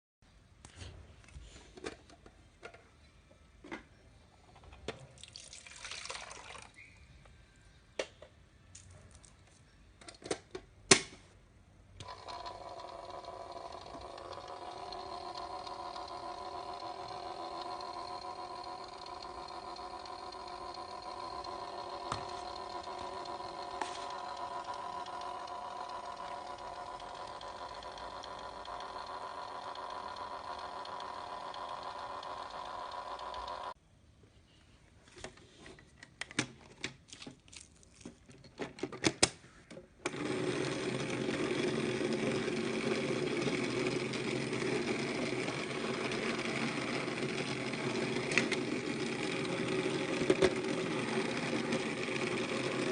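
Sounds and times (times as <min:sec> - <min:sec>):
small electric motor humming: 0:12.0 - 0:33.8, 0:40.1 - 0:52.9.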